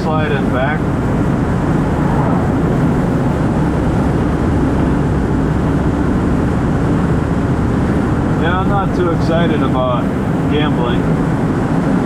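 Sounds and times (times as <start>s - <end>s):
tyre and engine drone: 0.0s - 12.0s
wind noise: 0.0s - 12.0s.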